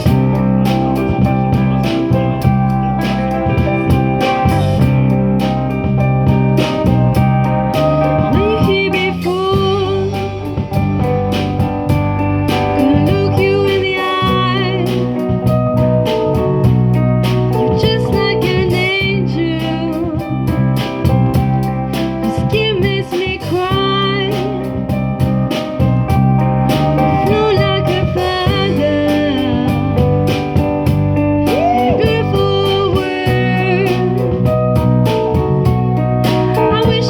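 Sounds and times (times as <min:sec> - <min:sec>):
drums keeping a steady beat: 0:00.0 - 0:37.0
guitars: 0:00.0 - 0:37.0
lead singer singing: 0:07.6 - 0:10.8, 0:12.5 - 0:15.5, 0:17.5 - 0:20.6, 0:22.2 - 0:25.0, 0:27.0 - 0:34.9, 0:36.3 - 0:37.0.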